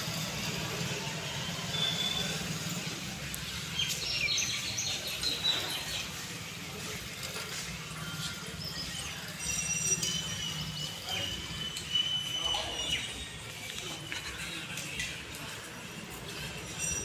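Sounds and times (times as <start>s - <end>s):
small birds chirping: 3.2s - 14.8s.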